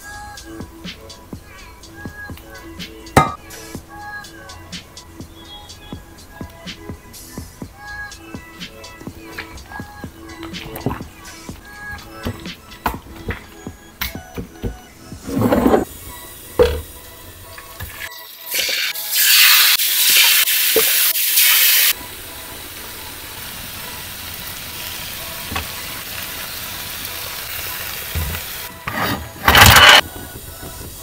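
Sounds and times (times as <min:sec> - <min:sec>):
chicken sizzling in a grill pan: 0:18.3 - 0:28.7.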